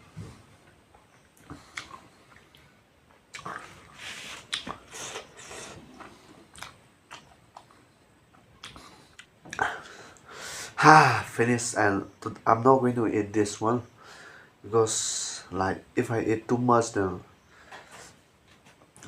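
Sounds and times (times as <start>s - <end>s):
person biting and chewing food: 3.3s - 7.7s.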